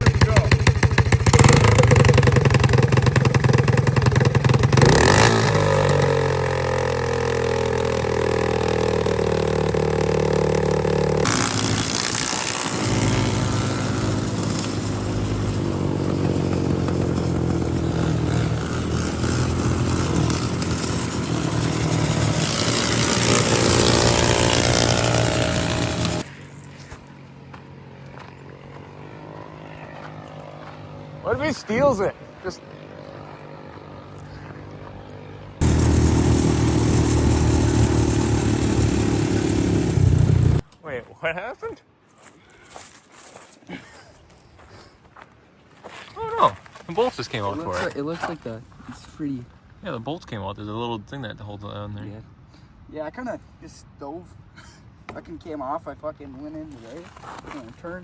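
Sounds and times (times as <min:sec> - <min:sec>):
lawnmower engine running hard: 0:00.0 - 0:26.3, 0:35.6 - 0:40.6.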